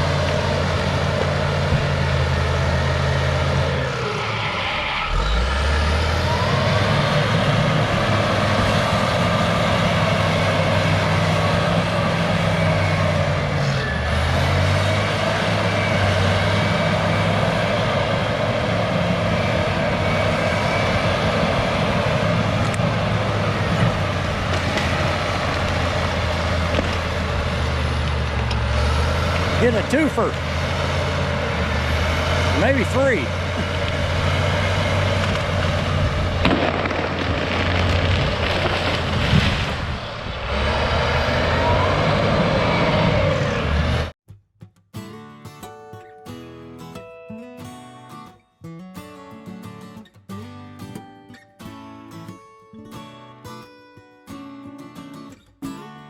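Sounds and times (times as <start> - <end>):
bulldozer diesel engine straining: 0.0 - 44.2.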